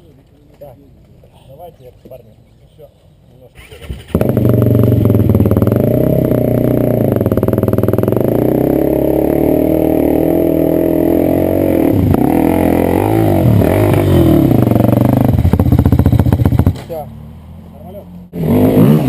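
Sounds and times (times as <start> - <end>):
motorcycle engine running under load: 4.1 - 16.8.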